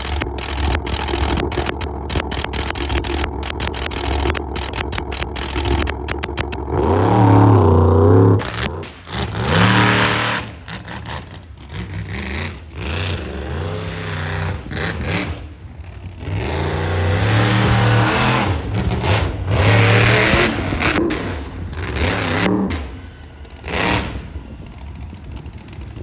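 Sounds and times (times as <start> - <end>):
truck engine revving: 0.0 - 26.0.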